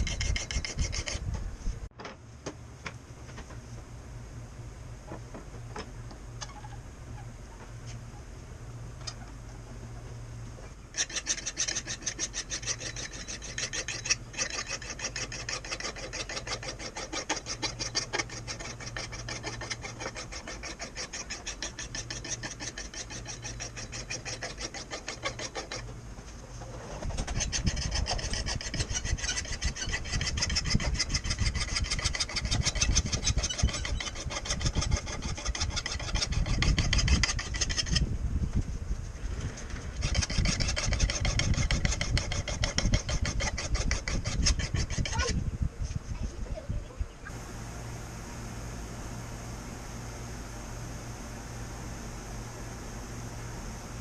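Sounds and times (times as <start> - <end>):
rasping abrasive strokes on axe: 0.0 - 1.3, 10.9 - 25.9, 27.0 - 38.0, 39.9 - 45.3.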